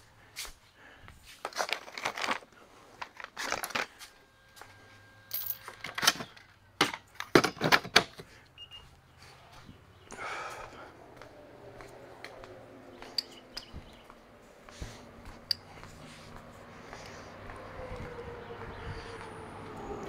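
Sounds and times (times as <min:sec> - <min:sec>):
metal tools clinking and rattling: 0:05.3 - 0:08.2, 0:13.1 - 0:13.7.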